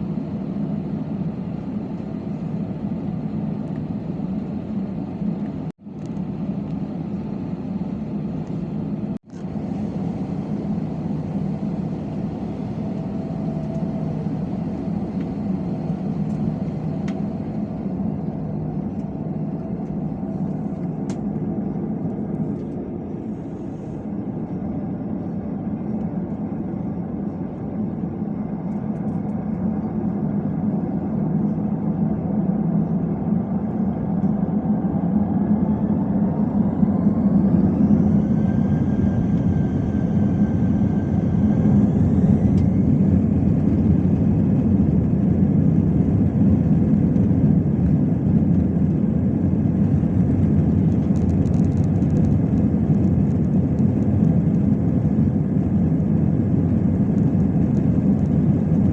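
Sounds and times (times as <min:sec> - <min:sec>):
jet engines spooling up: 0:33.9 - 0:58.9.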